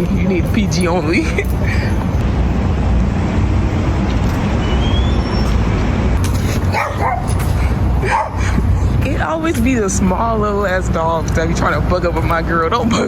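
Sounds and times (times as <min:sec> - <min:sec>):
small dog barking: 0:06.7 - 0:07.4, 0:08.1 - 0:08.4.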